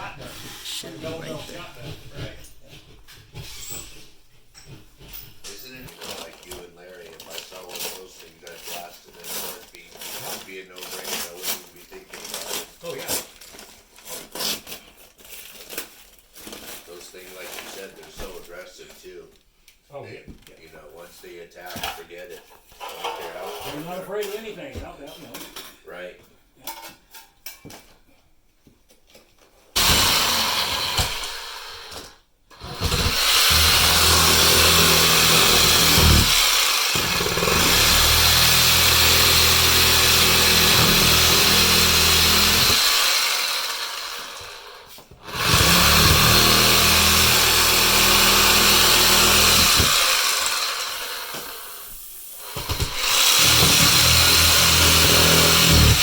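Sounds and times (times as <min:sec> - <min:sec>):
electric power tool running: 0:29.8 - 0:51.8, 0:52.4 - 0:56.0.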